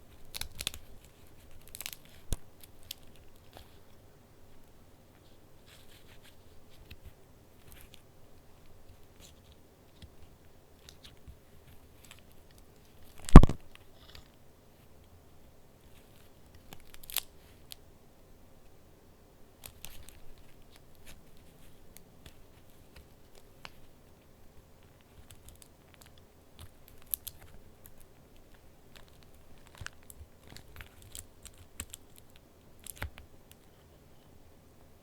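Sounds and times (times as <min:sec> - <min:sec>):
paper rustling and clicking: 0:00.1 - 0:03.8, 0:24.8 - 0:33.7
small snap: 0:13.3 - 0:13.6.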